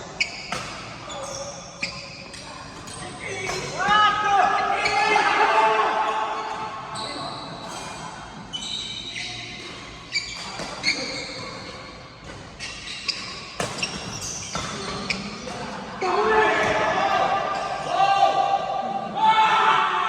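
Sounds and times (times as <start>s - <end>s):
shoes squeaking on court: 0.0s - 3.9s, 6.4s - 16.8s
racket hitting shuttlecock: 13.5s - 14.8s.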